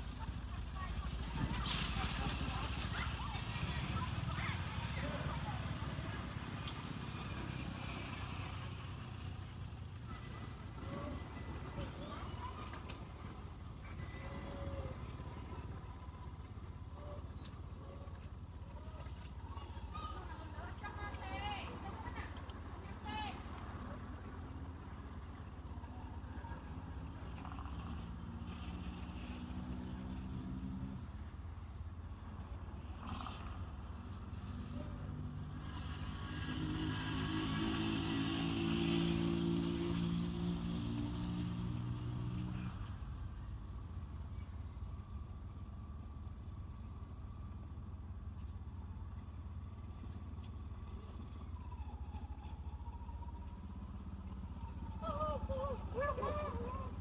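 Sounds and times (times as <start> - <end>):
vehicle engine rumbling: 0.0 - 57.0
vehicle engine idling: 42.9 - 57.0.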